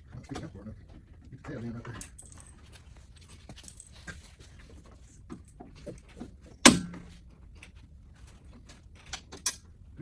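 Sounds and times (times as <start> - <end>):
loud metallic clank: 6.7 - 7.1.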